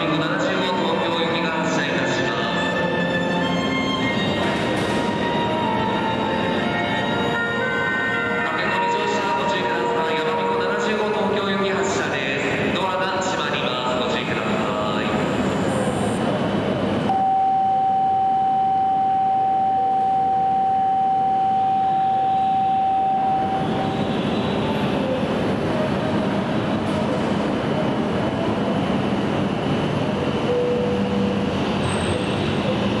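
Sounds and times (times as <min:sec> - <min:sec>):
train pulling out: 0:00.7 - 0:10.5, 0:14.2 - 0:33.0
electronic warning tone: 0:17.1 - 0:24.0.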